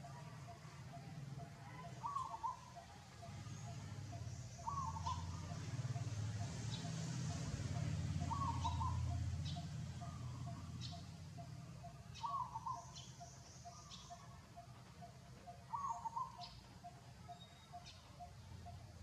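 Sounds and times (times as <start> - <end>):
bird calling: 0.0 - 19.0.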